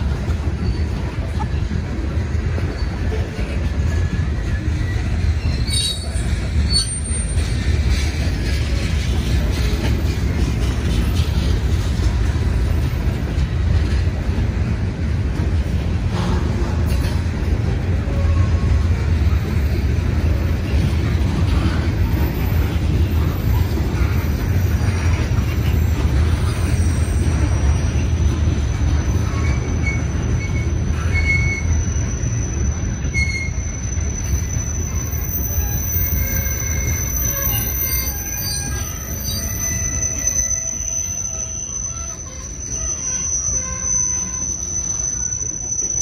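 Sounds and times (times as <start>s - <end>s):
train wheels rumbling on rail: 0.0s - 46.0s
high-pitched wheel squeals: 2.6s - 8.5s, 16.2s - 46.0s.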